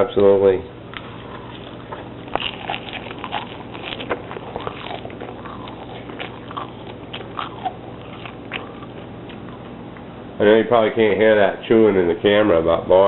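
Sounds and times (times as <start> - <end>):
person chewing crunchy greens: 1.0 - 10.1.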